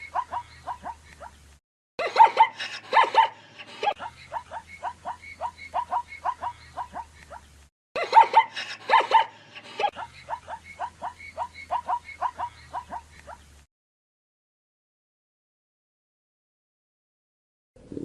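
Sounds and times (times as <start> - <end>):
animal yelping calls: 0.0 - 1.3, 2.2 - 7.5, 10.1 - 13.4.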